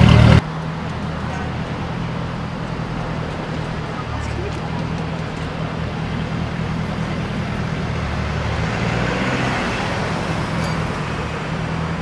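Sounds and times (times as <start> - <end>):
car engine idling: 0.0 - 8.7
car passing by: 7.0 - 12.0.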